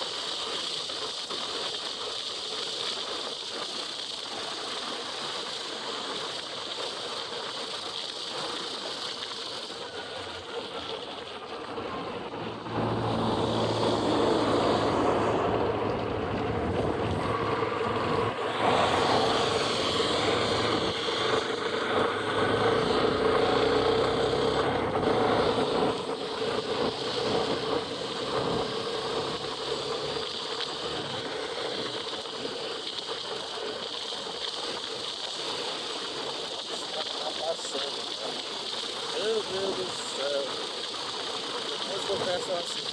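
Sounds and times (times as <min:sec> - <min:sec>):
wind and road rush: 0:11.6 - 0:32.2
motorcycle engine drone: 0:11.7 - 0:31.8.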